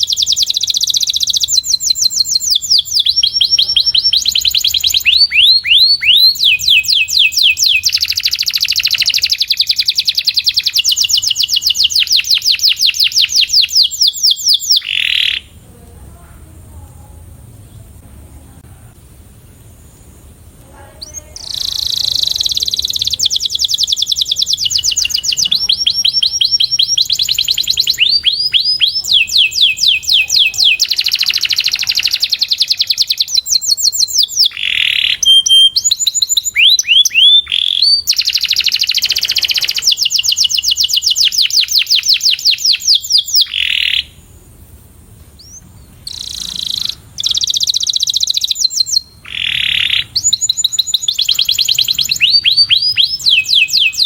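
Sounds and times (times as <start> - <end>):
canary singing trills: 0.0 - 15.7, 19.7 - 44.4, 45.4 - 54.0.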